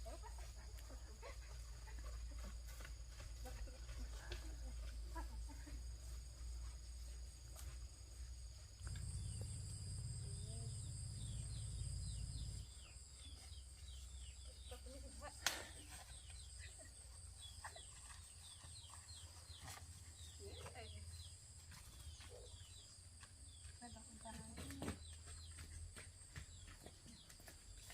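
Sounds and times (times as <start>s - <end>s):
insects droning: 0.0s - 27.9s
small birds chirping: 0.0s - 27.9s.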